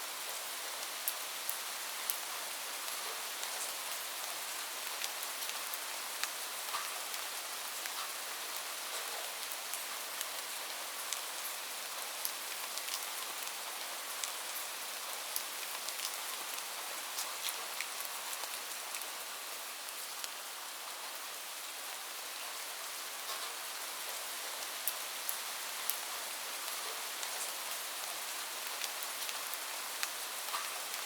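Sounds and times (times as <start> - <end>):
steady rain hiss: 0.0 - 31.0.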